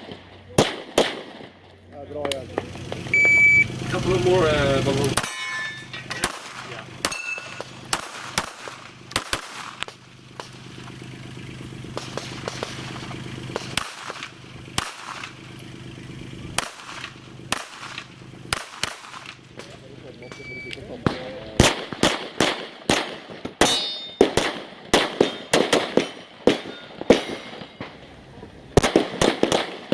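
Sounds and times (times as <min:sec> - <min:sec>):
handgun shots: 0:00.0 - 0:01.6, 0:21.1 - 0:27.8
steady low hum: 0:00.0 - 0:22.0.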